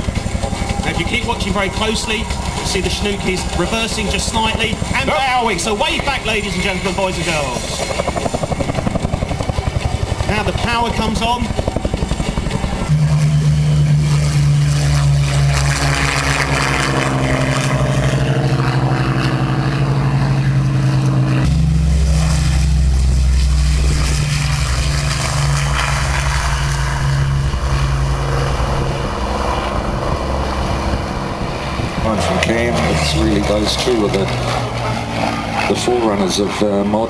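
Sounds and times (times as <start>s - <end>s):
aircraft engines droning: 0.0s - 37.0s.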